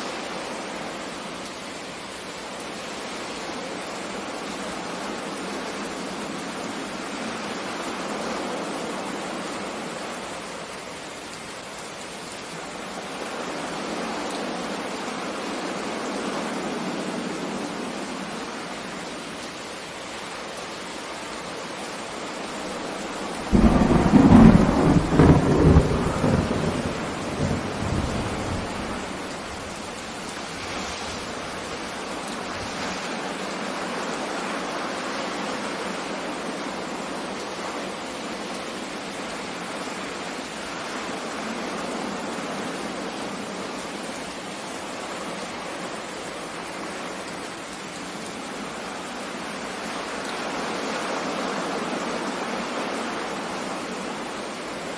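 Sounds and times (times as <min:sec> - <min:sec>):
heavy rain hissing: 0:00.0 - 0:54.9
thunder rumbling: 0:23.4 - 0:29.7.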